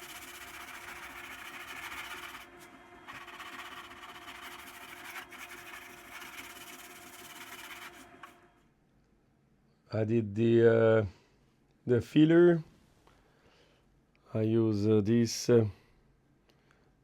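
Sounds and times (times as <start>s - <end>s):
sanding a surface: 0.0s - 8.4s.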